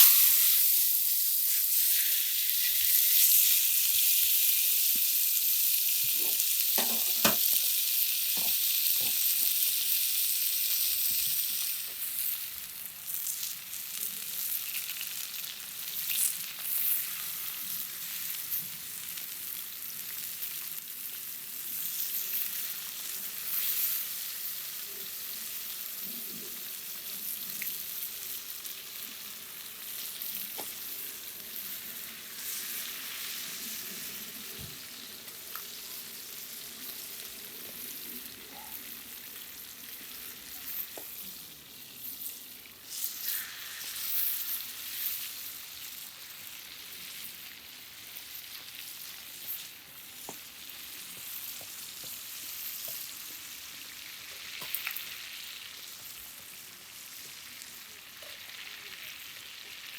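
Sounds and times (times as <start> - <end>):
food sizzling in a pan: 0.0 - 59.9
utensil knocking against pan: 6.2 - 7.6.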